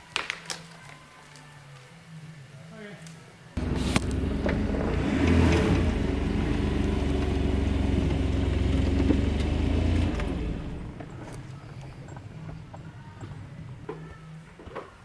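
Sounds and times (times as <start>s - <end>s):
motor humming: 3.6s - 11.0s.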